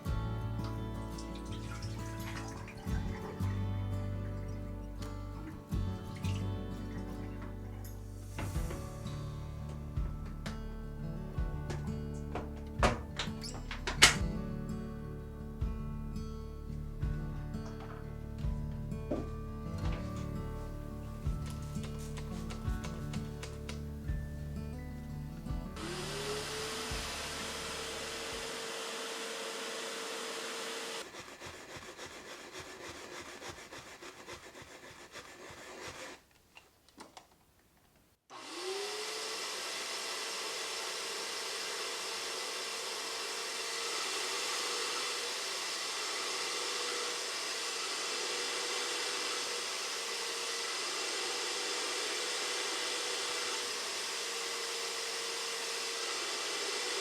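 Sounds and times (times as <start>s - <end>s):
wet cleaner motor running: 25.8s - 32.8s, 38.3s - 57.0s.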